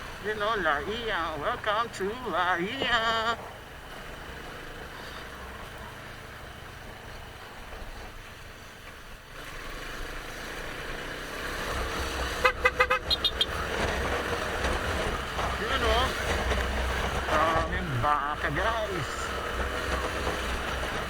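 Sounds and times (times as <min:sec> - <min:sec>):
wind and road noise: 0:00.0 - 0:21.0
vehicle horn short toots: 0:12.4 - 0:13.6.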